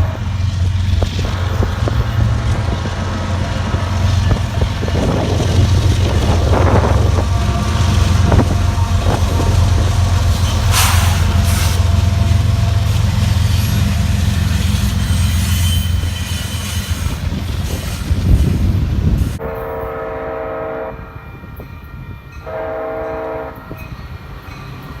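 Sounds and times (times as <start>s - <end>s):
wind buffeting microphone: 0.0s - 19.5s
train rumbling by: 0.0s - 25.0s
short hiss: 10.7s - 11.8s.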